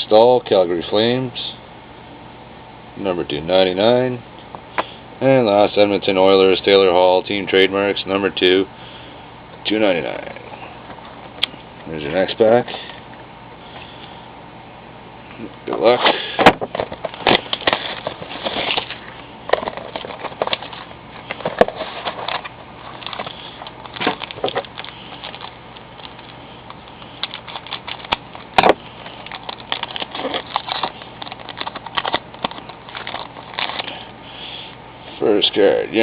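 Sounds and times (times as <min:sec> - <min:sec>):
cards rustling and snapping: 0:16.4 - 0:34.1
wrapper crinkling: 0:16.9 - 0:34.1.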